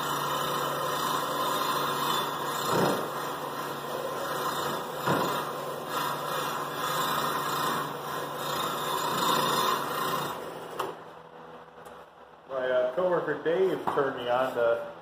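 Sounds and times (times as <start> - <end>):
drill press motor hum: 0.0 - 11.0.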